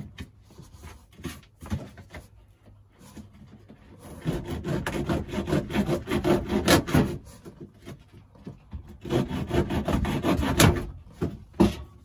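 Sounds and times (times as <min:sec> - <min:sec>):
hand tool rasping on pipe: 0:04.0 - 0:07.6, 0:08.9 - 0:10.9.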